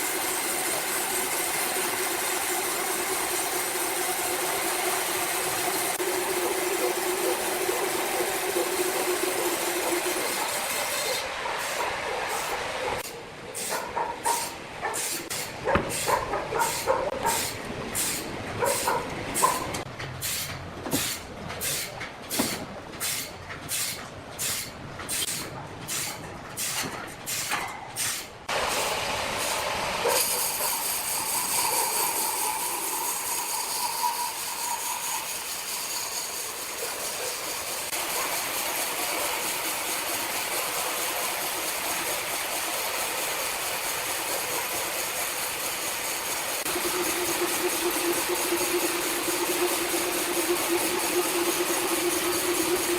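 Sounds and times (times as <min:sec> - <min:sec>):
steady machine noise: 0:00.0 - 0:13.1, 0:31.1 - 0:52.9
sawmill machine hissing strokes: 0:00.0 - 0:21.9, 0:40.6 - 0:52.9.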